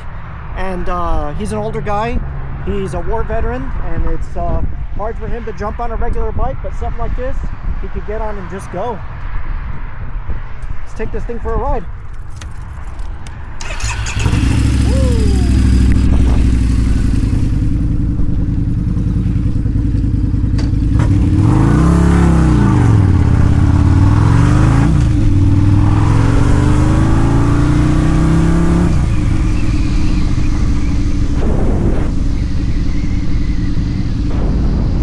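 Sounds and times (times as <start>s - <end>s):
motorcycle engine starting and revving: 13.6s - 35.0s.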